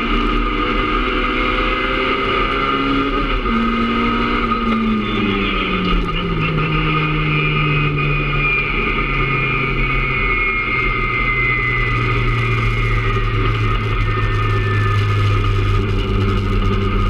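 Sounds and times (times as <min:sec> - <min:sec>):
car engine from inside cabin: 0:00.0 - 0:17.0.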